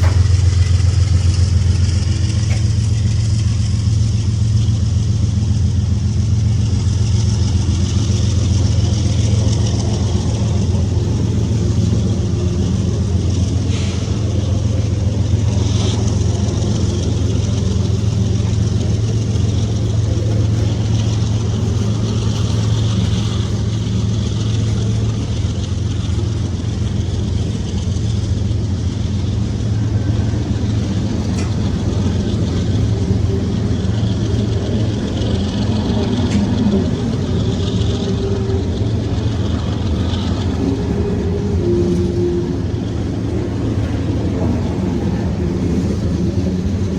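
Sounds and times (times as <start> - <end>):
diesel locomotive engine drone: 0.0 - 46.9.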